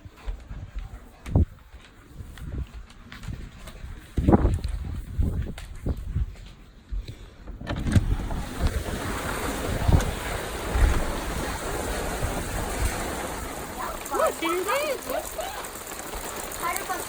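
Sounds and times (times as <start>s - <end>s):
wind buffeting microphone: 0.0s - 16.9s
rain hissing: 7.9s - 17.0s.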